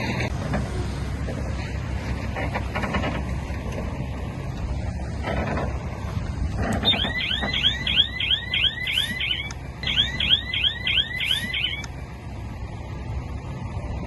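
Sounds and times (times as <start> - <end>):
heavy machine engine running: 0.0 - 14.0
fast electronic chirping alarm: 6.8 - 11.9.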